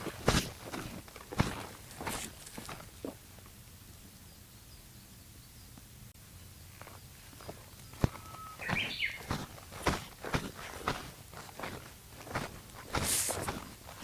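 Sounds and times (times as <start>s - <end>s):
footsteps on a trail: 0.0s - 3.2s, 6.7s - 14.0s
bird whistle and chirps: 7.8s - 9.3s.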